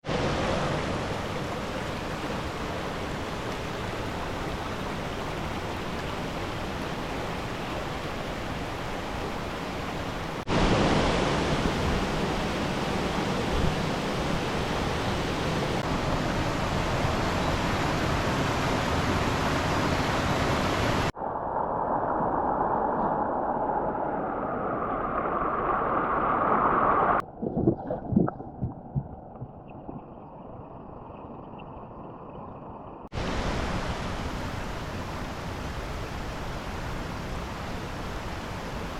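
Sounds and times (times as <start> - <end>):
stream rushing over rocks: 0.0 - 21.2, 33.1 - 38.9
irregular low thumps: 27.4 - 30.0.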